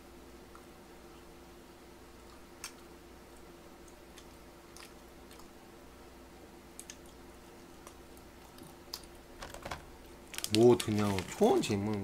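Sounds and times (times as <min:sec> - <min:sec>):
steady low hum: 0:00.0 - 0:12.0
chewing and biting: 0:03.8 - 0:05.6.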